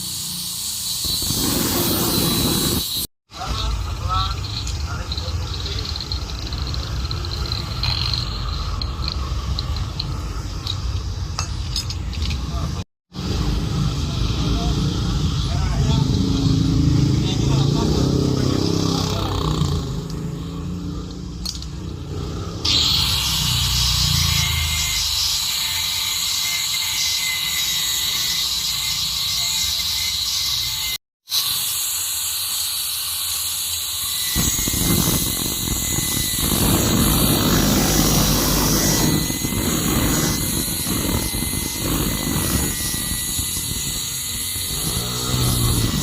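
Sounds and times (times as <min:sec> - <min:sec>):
gas torch flame hissing: 0:00.0 - 0:05.8, 0:34.4 - 0:44.1.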